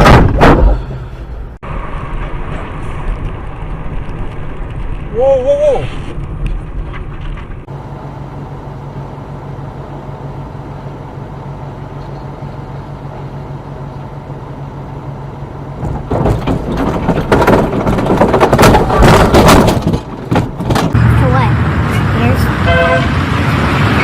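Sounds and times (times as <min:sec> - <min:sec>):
rough rumbling and banging: 0:00.0 - 0:05.2, 0:06.0 - 0:07.7, 0:15.6 - 0:24.0
vehicle engine droning: 0:00.6 - 0:19.6, 0:20.4 - 0:24.0.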